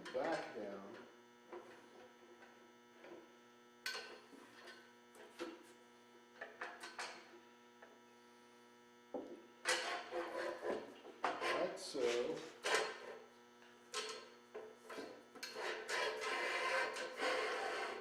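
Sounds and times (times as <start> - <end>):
light metal knocks and scrapes: 0.0 - 3.3, 9.2 - 13.2, 13.9 - 18.0.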